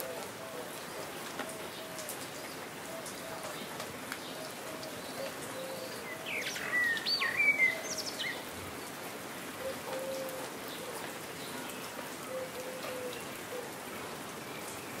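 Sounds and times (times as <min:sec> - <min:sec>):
songbird chirping: 0:00.0 - 0:09.0
steady rain falling: 0:00.0 - 0:15.0.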